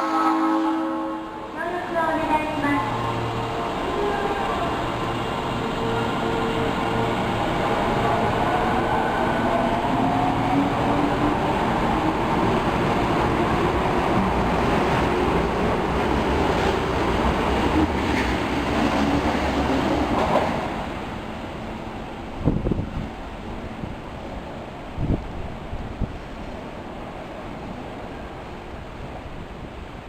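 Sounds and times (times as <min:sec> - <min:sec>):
subway train motor whine: 0:00.0 - 0:20.2.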